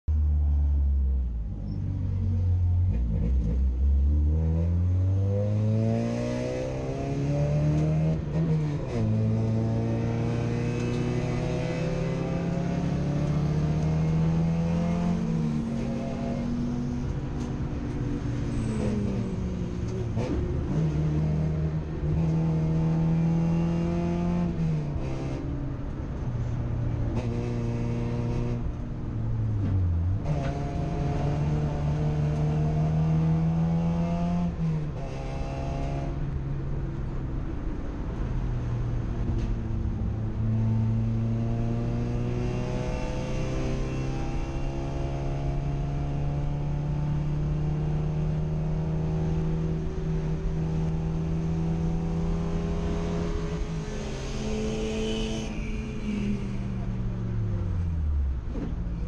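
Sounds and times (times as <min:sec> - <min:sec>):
race car engine accelerating: 0:02.9 - 0:25.4, 0:29.6 - 0:36.2.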